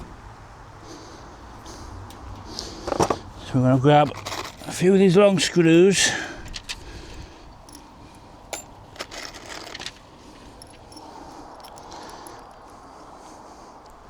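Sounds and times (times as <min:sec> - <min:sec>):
faint handling noise: 0:01.6 - 0:12.9
metal screws clinking: 0:02.1 - 0:12.7.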